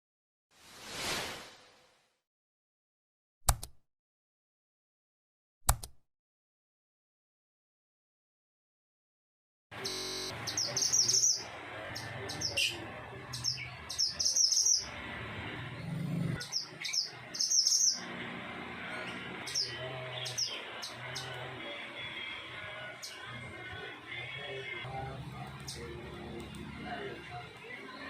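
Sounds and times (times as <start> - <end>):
songbird high chirping phrases: 10.3 - 14.9, 16.4 - 18.1, 19.0 - 22.2.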